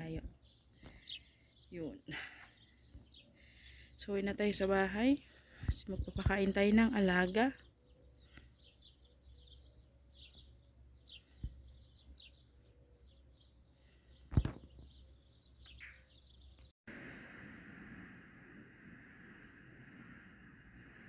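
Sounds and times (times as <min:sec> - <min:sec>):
birds chirping: 0:00.0 - 0:16.7
steady rushing noise: 0:16.9 - 0:21.0.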